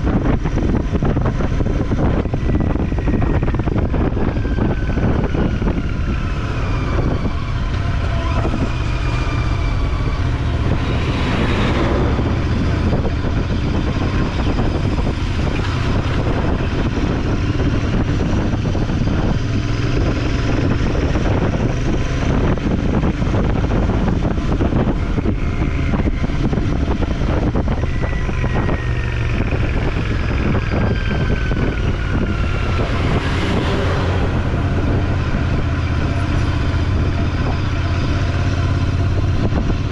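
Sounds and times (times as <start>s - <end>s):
motorcycle engine hum: 0.0s - 39.9s
road and wind noise: 0.0s - 39.9s
falling whines: 2.2s - 17.0s.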